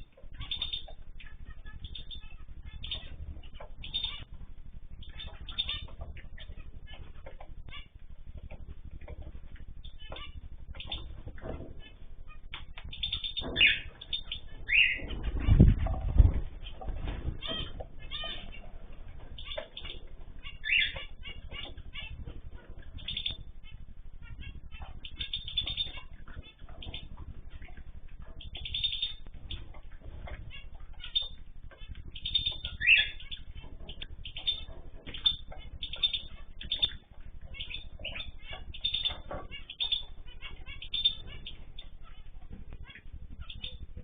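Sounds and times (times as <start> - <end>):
cage birds chirping: 0.0 - 44.0
steady low rumble: 0.0 - 44.0.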